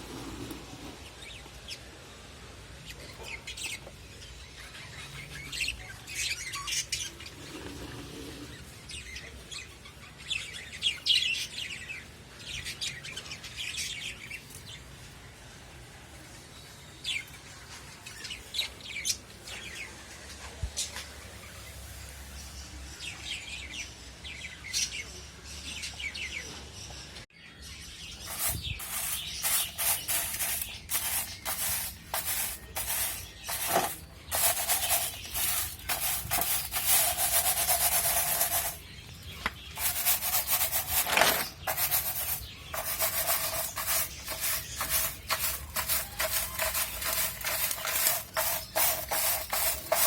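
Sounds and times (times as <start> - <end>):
scrubbing cage tray: 28.2 - 50.0.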